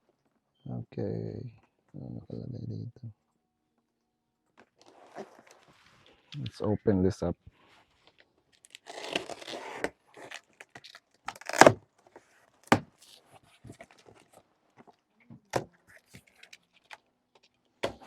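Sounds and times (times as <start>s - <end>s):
cardboard box and packaging handled: 7.8s - 18.0s.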